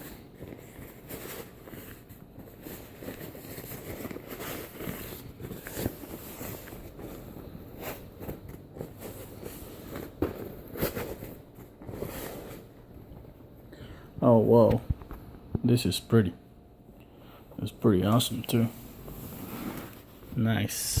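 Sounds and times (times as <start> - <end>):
packaging crinkling and rustling: 0.0 - 12.8.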